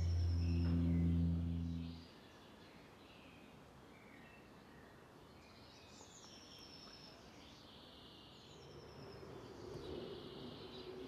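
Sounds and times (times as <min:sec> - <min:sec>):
low steady hum: 0:00.0 - 0:02.1.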